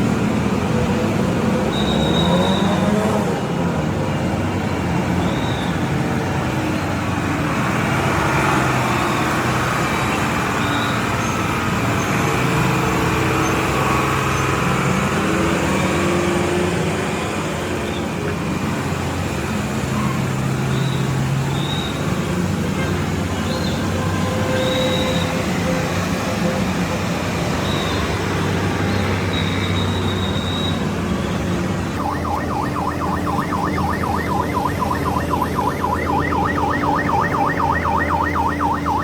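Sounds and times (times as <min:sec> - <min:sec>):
road traffic noise: 0:00.0 - 0:39.0
short high-pitched tones: 0:32.0 - 0:39.0
truck diesel engine running: 0:32.0 - 0:39.0.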